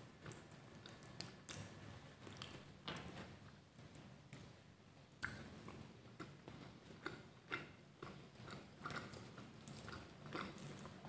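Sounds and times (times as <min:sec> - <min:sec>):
crunchy chewing: 0:05.2 - 0:11.0.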